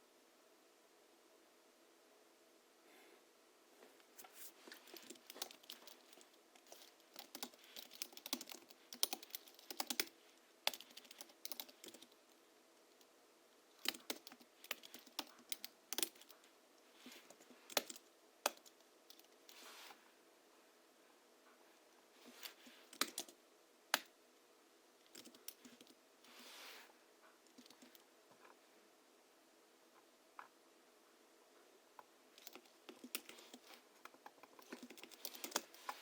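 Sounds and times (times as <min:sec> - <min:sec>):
muted keyboard typing: 0:04.7 - 0:12.2, 0:13.8 - 0:16.4, 0:17.2 - 0:19.3, 0:22.8 - 0:24.1, 0:25.1 - 0:26.0, 0:27.5 - 0:28.0, 0:32.4 - 0:36.0.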